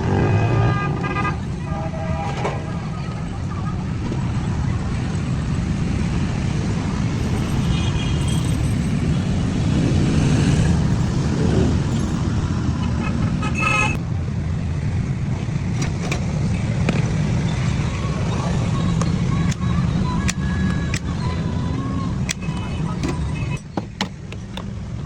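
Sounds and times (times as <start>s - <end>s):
traffic rumble: 0.0s - 25.0s
car horn toots: 13.0s - 14.0s.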